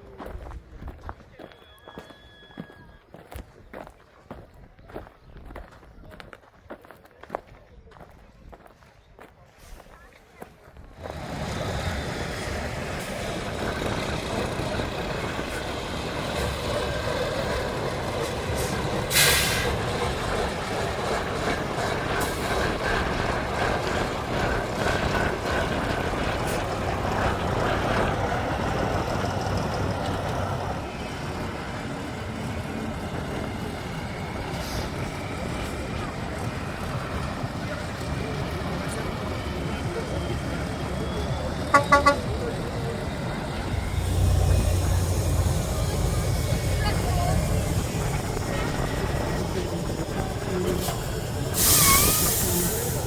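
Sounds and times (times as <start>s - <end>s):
truck diesel engine under load: 10.8s - 53.0s
air-brake hiss: 18.6s - 19.8s, 50.8s - 53.0s.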